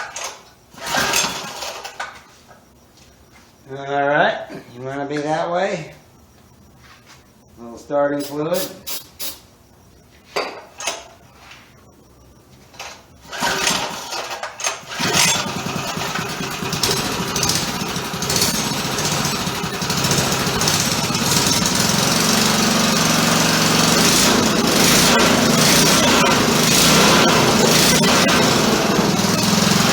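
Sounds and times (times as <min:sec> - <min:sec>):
small engine starting and running: 0:00.7 - 0:02.0, 0:13.3 - 0:29.9.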